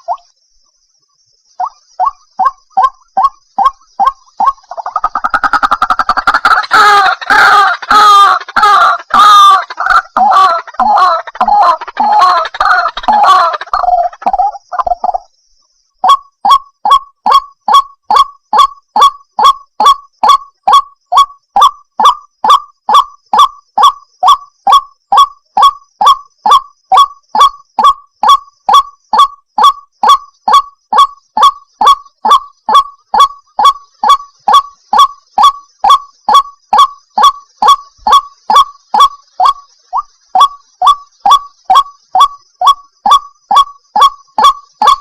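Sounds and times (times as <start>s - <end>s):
waterhen harsh calls: 1.6s - 15.2s, 16.0s - 45.0s.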